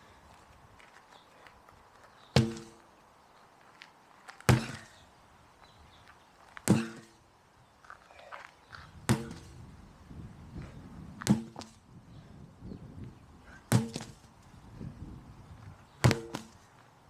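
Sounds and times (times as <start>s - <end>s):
sledgehammer blows ringing: 2.4s - 2.8s, 4.5s - 4.9s, 6.6s - 7.1s, 9.1s - 9.6s, 11.2s - 11.7s, 13.7s - 14.1s, 16.0s - 16.5s.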